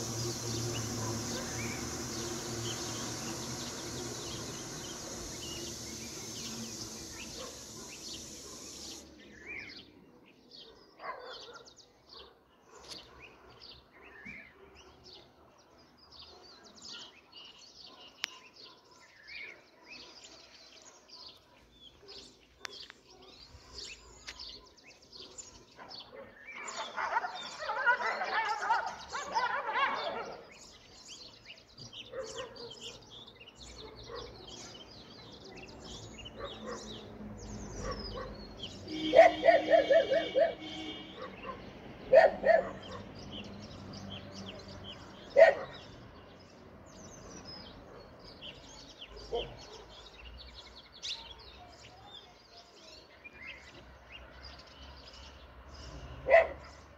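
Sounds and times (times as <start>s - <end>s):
small birds chirping: 0.0s - 15.0s, 16.2s - 56.9s.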